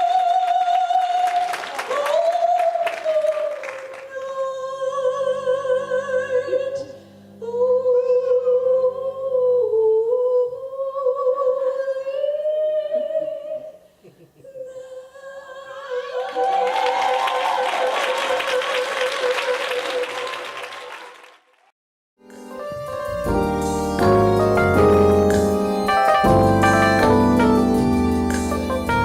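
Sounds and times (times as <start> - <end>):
person singing with vibrato: 0.0 - 20.5.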